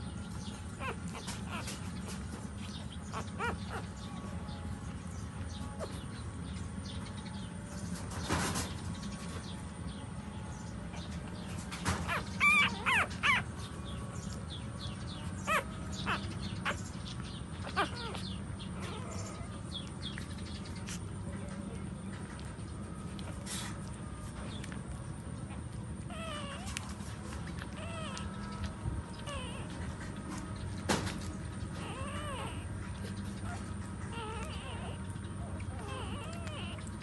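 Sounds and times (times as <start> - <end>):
steady low hum: 0.0 - 37.0
high-pitched animal cries: 0.4 - 4.6, 11.9 - 13.7, 14.8 - 19.6, 26.1 - 29.9, 31.7 - 37.0.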